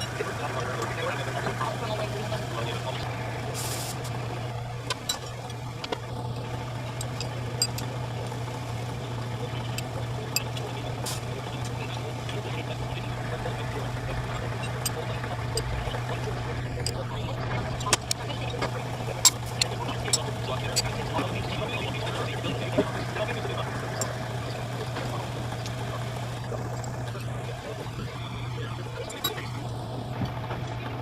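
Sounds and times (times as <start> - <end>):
workshop machine humming: 0.0 - 31.0
light clicks and ticks: 4.8 - 27.4.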